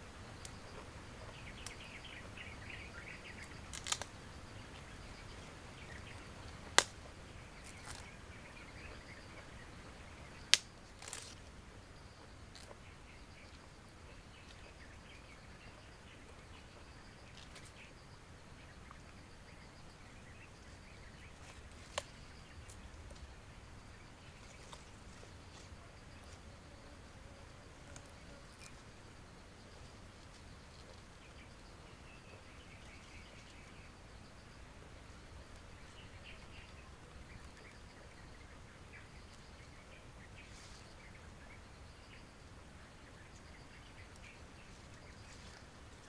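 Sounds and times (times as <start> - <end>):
grass stalk being chewed: 3.7 - 4.1, 10.9 - 11.4
sharp snap: 6.7 - 7.0.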